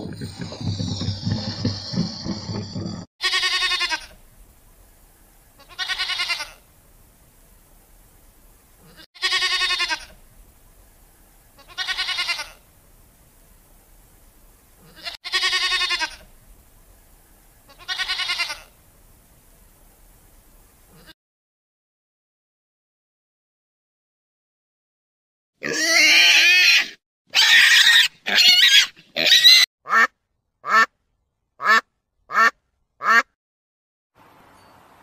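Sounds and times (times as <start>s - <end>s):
goats bleating: 3.2s - 4.2s, 5.6s - 6.6s, 8.8s - 10.1s, 11.6s - 12.6s, 14.8s - 16.3s, 17.7s - 18.7s.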